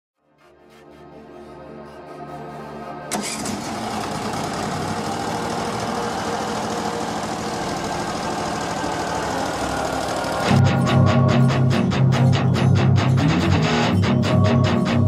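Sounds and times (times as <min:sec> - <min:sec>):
engine running steadily: 0:03.1 - 0:10.9
rock music with electric guitar: 0:08.9 - 0:15.0.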